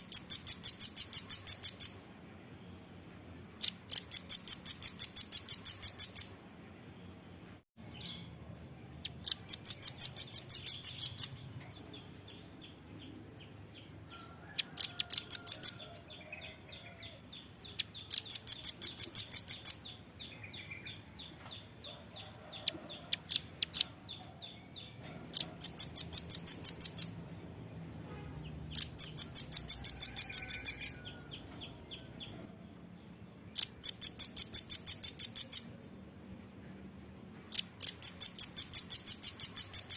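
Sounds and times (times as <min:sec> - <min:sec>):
bird singing high rattling trills: 0:00.0 - 0:02.0, 0:03.6 - 0:06.4, 0:09.1 - 0:21.7, 0:23.2 - 0:31.4, 0:33.5 - 0:35.8, 0:37.4 - 0:39.9.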